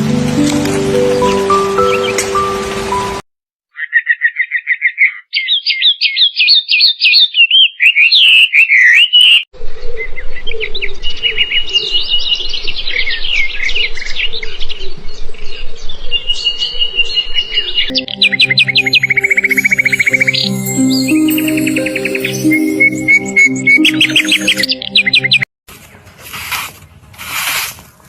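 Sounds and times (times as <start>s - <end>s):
small birds singing: 3.7s - 25.4s.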